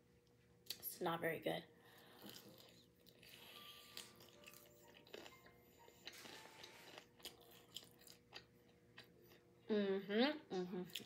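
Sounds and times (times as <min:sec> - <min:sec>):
person chewing: 0:02.0 - 0:09.5, 0:10.5 - 0:11.0.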